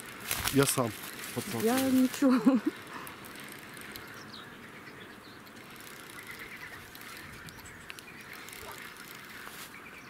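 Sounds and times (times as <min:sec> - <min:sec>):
faint bird calls: 0:02.0 - 0:10.0.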